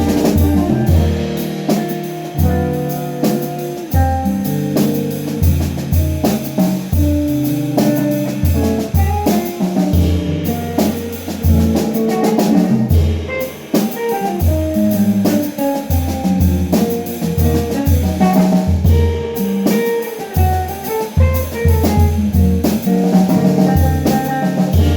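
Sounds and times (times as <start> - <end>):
drum kit with cymbals: 0.0 - 24.9
jazz band playing: 0.0 - 24.9.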